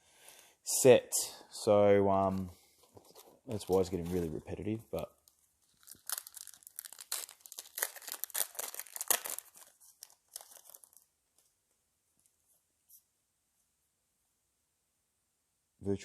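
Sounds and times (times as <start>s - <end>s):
foil wrapper crinkling and tearing: 5.0s - 11.5s.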